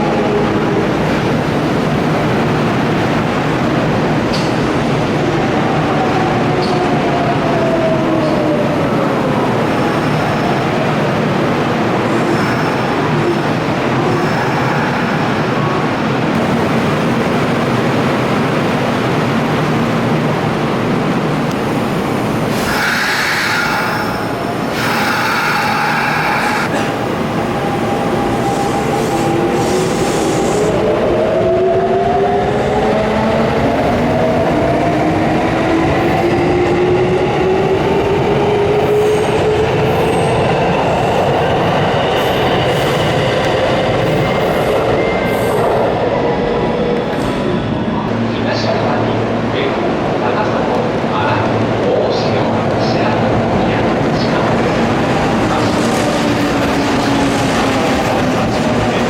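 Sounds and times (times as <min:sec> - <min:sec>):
electric train rumble: 0:00.0 - 0:59.0
traction motors whining: 0:22.5 - 0:27.1.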